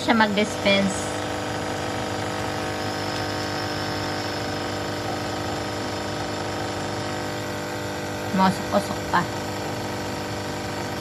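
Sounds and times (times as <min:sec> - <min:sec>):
coffee machine pump humming: 0:00.0 - 0:11.0.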